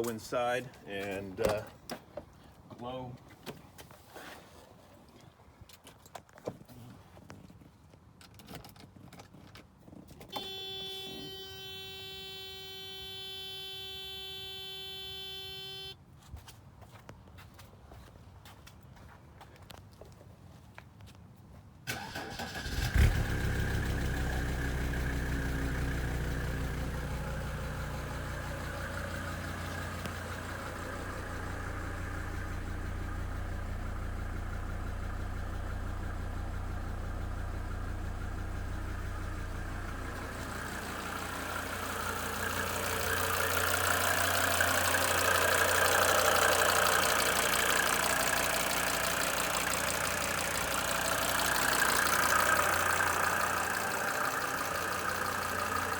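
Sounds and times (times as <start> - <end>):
diesel engine cranking: 21.9 - 55.9
diesel engine idling: 21.9 - 55.9.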